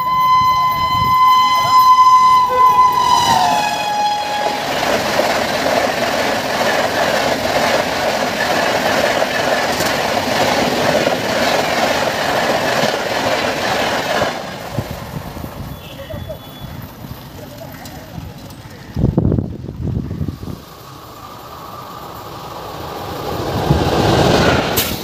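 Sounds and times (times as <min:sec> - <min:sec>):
train horn: 0:00.0 - 0:04.9
train coaches on rails: 0:00.0 - 0:25.0.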